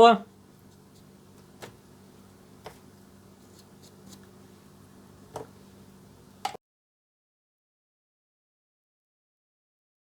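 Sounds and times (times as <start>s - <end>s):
steady low hum: 0.0s - 6.6s
faint paintbrush clicks and taps: 0.6s - 1.8s, 2.6s - 2.8s.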